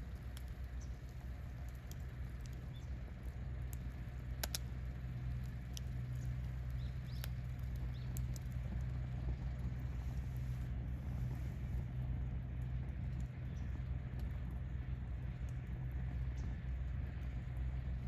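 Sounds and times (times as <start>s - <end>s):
campfire crackling and popping: 0.0s - 11.4s
low rumble of fire: 0.0s - 18.0s.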